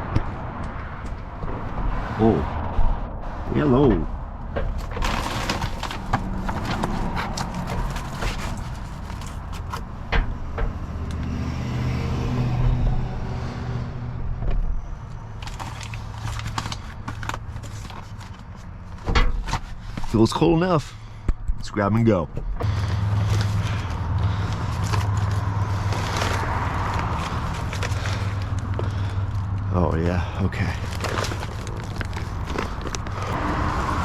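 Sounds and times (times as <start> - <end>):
packages knocking and rustling: 4.5 - 10.3, 15.4 - 20.2, 22.6 - 29.5, 30.6 - 33.4.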